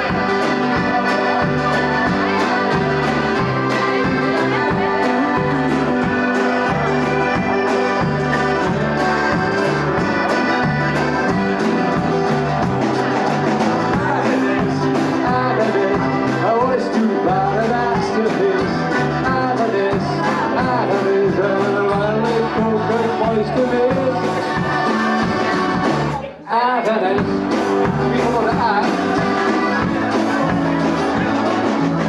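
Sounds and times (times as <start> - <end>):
wavering lead melody: 0.0 - 19.5
rock band playing: 0.0 - 26.3, 27.1 - 32.0.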